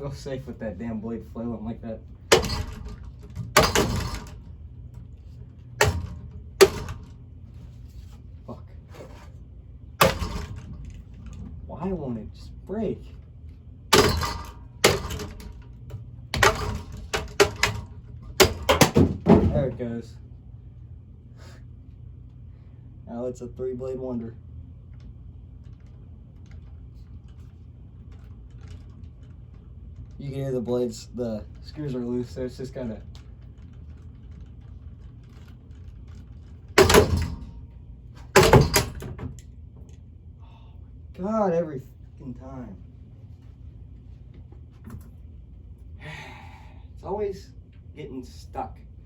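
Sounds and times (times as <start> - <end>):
fan blade banging and clattering: 0.0 - 13.3, 13.9 - 20.1, 26.6 - 40.0
fan motor humming: 0.0 - 49.0
loud clattering bangs: 2.3 - 4.6, 13.9 - 15.6, 36.8 - 37.5.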